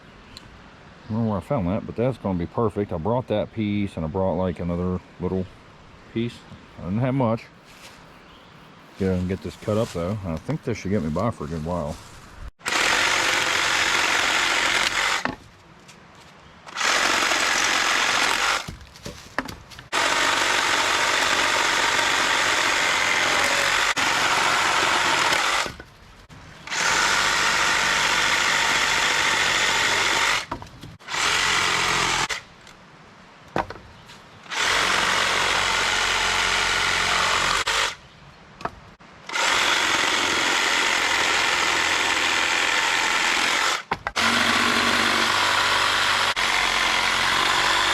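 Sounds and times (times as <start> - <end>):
power saw cutting wood: 12.6 - 15.3, 16.7 - 18.7, 19.9 - 25.8, 26.7 - 32.4, 34.5 - 38.0, 39.3 - 47.9.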